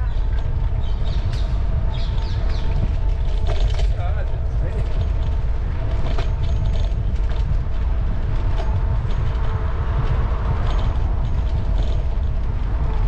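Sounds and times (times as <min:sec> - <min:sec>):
bicycle rattling clicks: 0:00.0 - 0:13.0
passing traffic: 0:00.0 - 0:13.0
road and wind rumble: 0:00.0 - 0:13.0.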